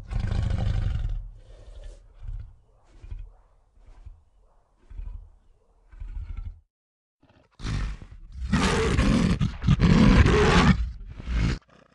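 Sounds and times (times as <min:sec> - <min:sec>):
animal roaring: 0:00.0 - 0:04.2, 0:04.8 - 0:11.9
faint low growls: 0:00.0 - 0:08.5.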